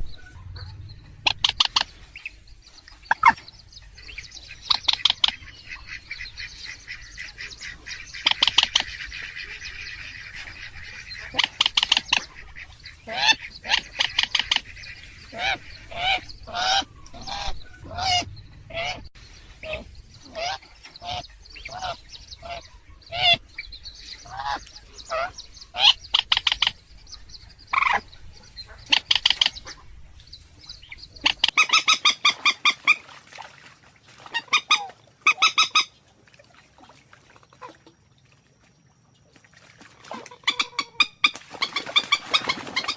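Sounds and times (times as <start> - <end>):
waterbird honking calls: 0.0 - 2.4, 3.0 - 23.4, 24.2 - 26.8, 30.8 - 33.1, 34.3 - 36.0, 40.1 - 42.9.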